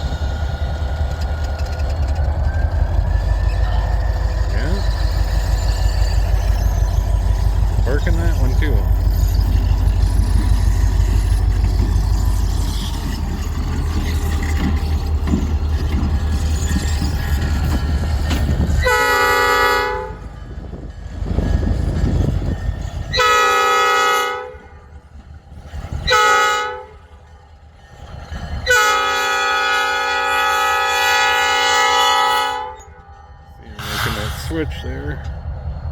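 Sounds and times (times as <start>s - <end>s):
locomotive air horn blasts: 18.8s - 20.3s, 23.1s - 24.8s, 26.0s - 27.1s, 28.6s - 33.0s, 33.8s - 34.4s.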